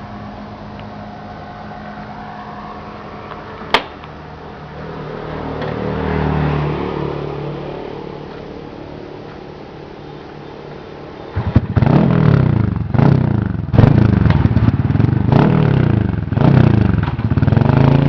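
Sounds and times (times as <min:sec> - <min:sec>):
motorcycle engine running and revving: 0:11.0 - 0:18.0.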